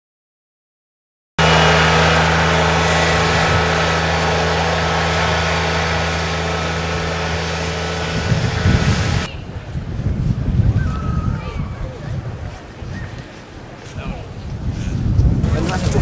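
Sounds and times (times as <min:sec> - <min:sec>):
engine running: 0:01.4 - 0:10.4, 0:15.4 - 0:16.0.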